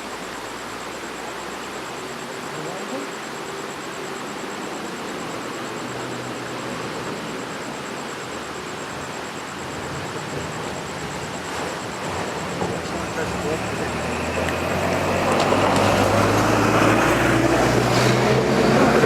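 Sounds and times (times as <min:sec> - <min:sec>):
waterfall rushing: 0:07.6 - 0:19.0.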